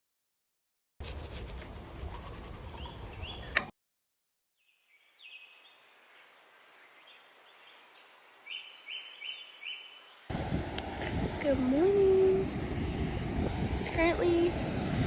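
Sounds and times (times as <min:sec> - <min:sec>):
birds chirping: 0:01.0 - 0:03.7, 0:04.7 - 0:10.4
steady outdoor noise: 0:01.0 - 0:03.7, 0:10.3 - 0:15.0.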